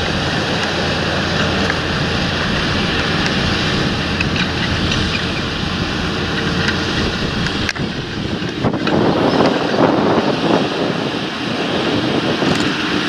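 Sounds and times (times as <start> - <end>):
tractor engine drone: 0.0 - 13.0
wind noise on microphone: 0.0 - 13.0.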